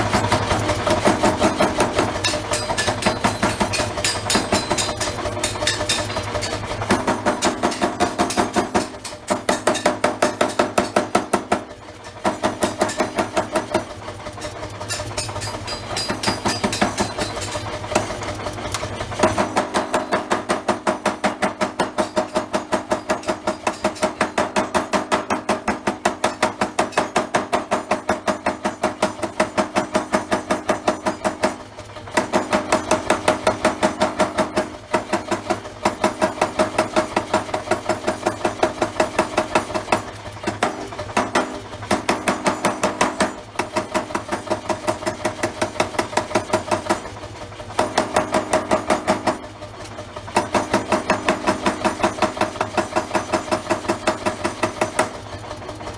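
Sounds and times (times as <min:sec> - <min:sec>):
forging hammer striking steel: 0:00.0 - 0:55.2.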